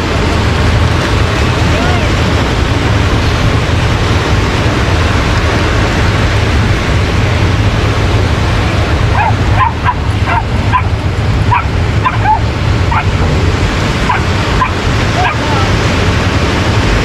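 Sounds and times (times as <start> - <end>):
beach surf: 0.0 - 17.0
wind noise: 0.0 - 17.0
dog yelping: 9.1 - 13.2, 14.0 - 15.5.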